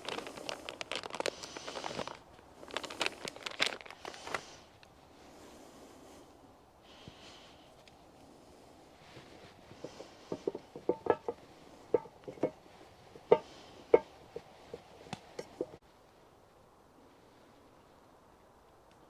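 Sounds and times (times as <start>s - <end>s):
background noise: 0.0s - 19.0s
objects knocking and clinking: 9.8s - 12.6s, 13.2s - 14.1s.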